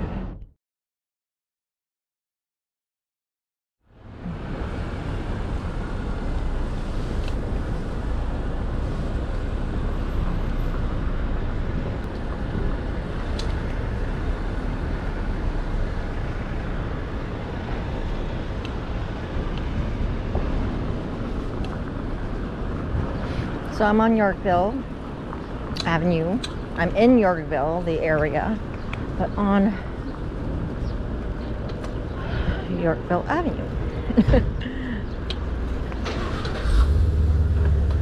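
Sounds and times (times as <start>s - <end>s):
wind rumble on microphone: 3.9s - 38.0s.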